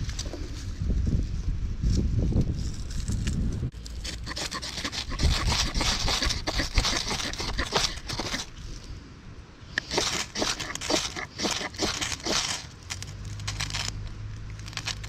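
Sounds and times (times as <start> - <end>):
firewood scraping and rustling: 0.0 - 9.0, 9.8 - 15.0
clicks and crackles: 9.8 - 15.0.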